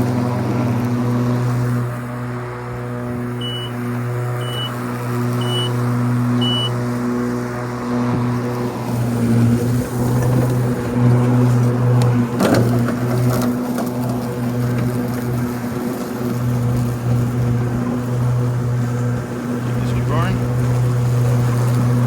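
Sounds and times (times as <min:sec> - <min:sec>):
riding lawn mower humming: 0:00.0 - 0:22.0
short electronic beeps: 0:03.4 - 0:03.8, 0:04.4 - 0:04.8, 0:05.4 - 0:05.8, 0:06.4 - 0:06.7.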